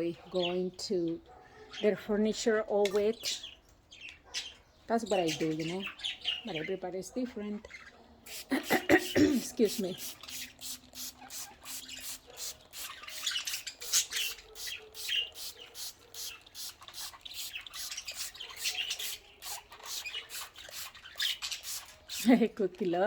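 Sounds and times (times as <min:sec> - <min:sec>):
budgies chirping: 0:00.0 - 0:23.0
spray bottle squirting: 0:08.3 - 0:22.5.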